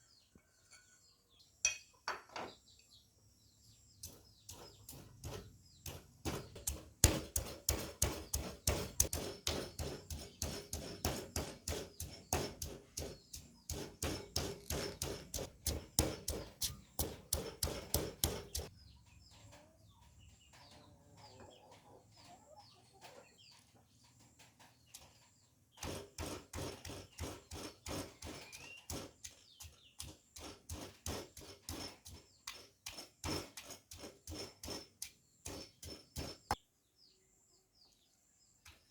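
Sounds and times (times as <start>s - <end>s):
knife chopping on cutting board: 5.2s - 18.7s.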